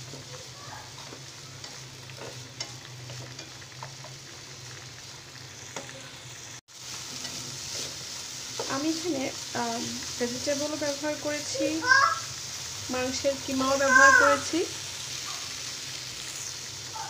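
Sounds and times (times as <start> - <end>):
spatula scraping pan: 0.0 - 4.3, 6.9 - 11.8
food sizzling in oil: 0.0 - 17.0.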